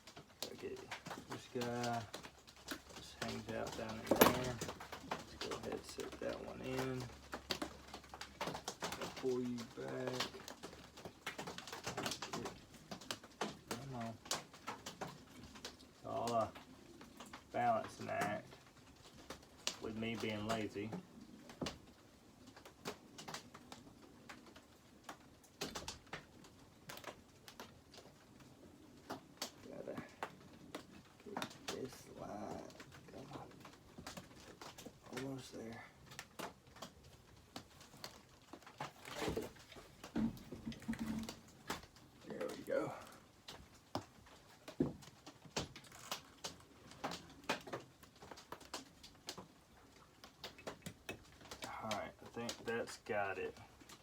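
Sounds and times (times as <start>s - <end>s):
chainsaw parts clicking and knocking: 3.3s - 4.9s.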